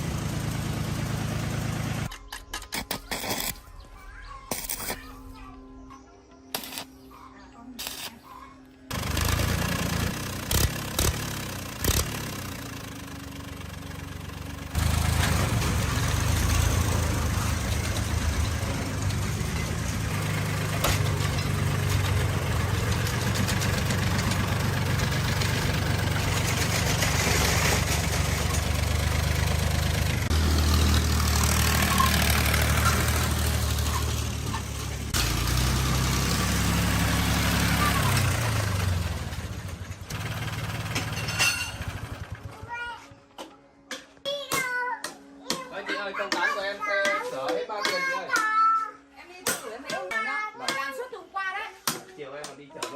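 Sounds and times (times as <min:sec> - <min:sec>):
engine idling: 0:00.0 - 0:02.1, 0:08.9 - 0:42.7.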